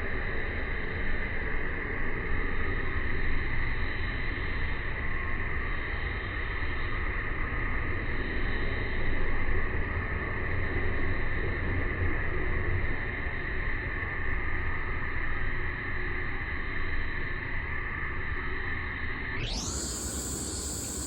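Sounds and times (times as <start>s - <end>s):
high-pitched drone: 19.4s - 21.0s.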